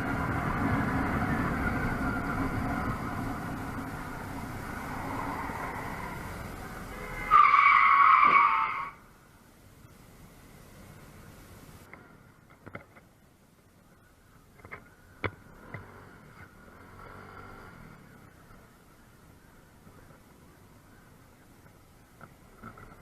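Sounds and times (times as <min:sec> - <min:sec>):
car driving: 0:00.0 - 0:23.0
tyre screech of car skidding: 0:06.9 - 0:09.0.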